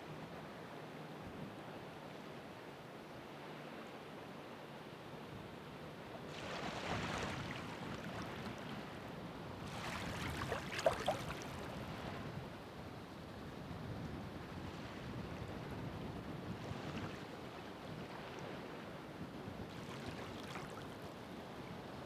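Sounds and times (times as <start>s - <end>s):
sharp wave splashes: 6.3s - 8.3s, 9.7s - 11.8s
ocean waves breaking: 6.3s - 12.3s, 19.7s - 21.0s.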